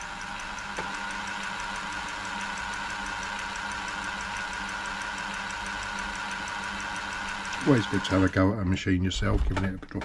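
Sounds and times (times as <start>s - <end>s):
sewing machine running: 0.0s - 8.5s.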